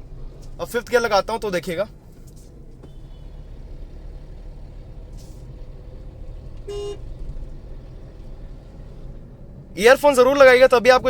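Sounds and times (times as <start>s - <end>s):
car engine rumble inside cabin: 0.0s - 11.0s
car horn toot: 2.8s - 5.0s, 6.0s - 7.6s.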